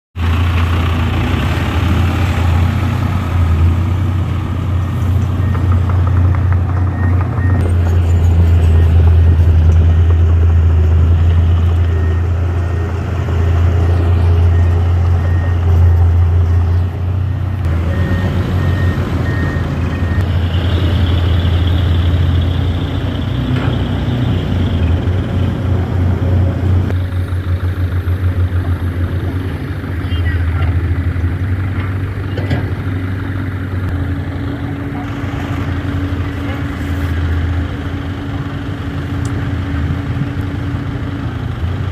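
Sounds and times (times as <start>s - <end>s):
diesel truck engine running: 0.2s - 41.9s
reversing beeper beeps: 6.8s - 7.7s, 8.5s - 10.2s, 11.6s - 22.5s.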